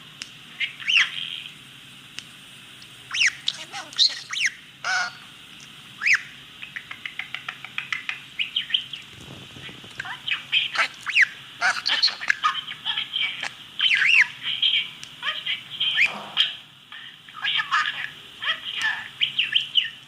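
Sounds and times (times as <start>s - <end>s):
birds chirping and squawking: 0.6s - 1.6s, 3.1s - 5.3s, 6.0s - 20.0s
bird ticking calls: 6.0s - 9.1s.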